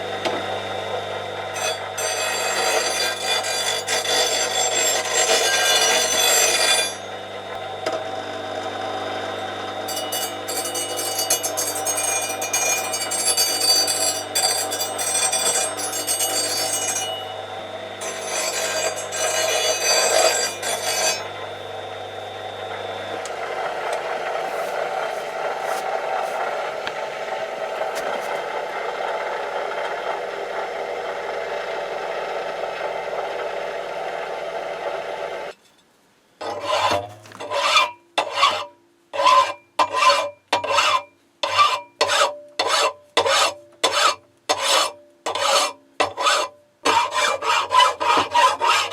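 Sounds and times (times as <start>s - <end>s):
power tool cutting metal rod: 1.3s - 22.0s, 36.4s - 48.9s
hand file rasping on steel: 9.9s - 17.2s, 18.0s - 21.4s, 27.7s - 28.4s, 36.4s - 48.9s.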